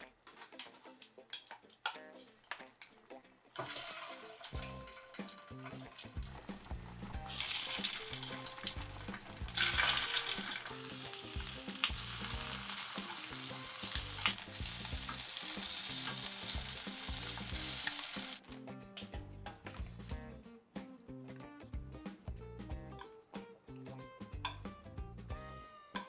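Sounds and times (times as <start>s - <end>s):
food sizzling in oil: 3.6s - 18.4s
utensils clicking against pan: 3.6s - 18.4s.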